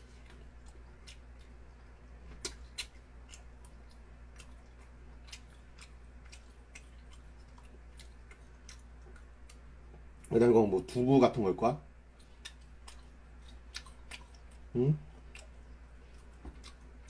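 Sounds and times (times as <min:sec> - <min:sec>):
low steady hum: 0:00.0 - 0:17.0
chewing noodles with mouth smacks: 0:00.1 - 0:09.6, 0:12.2 - 0:17.0.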